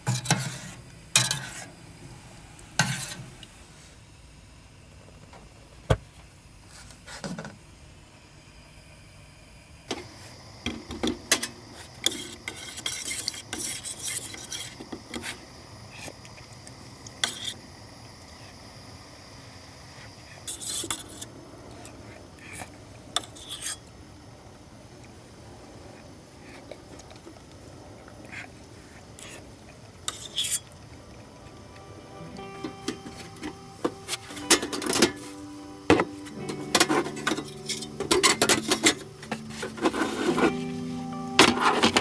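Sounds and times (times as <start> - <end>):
metal cookware clinking and scraping: 9.9 - 17.7, 20.3 - 23.9, 30.0 - 30.8, 32.6 - 40.6, 41.4 - 42.0.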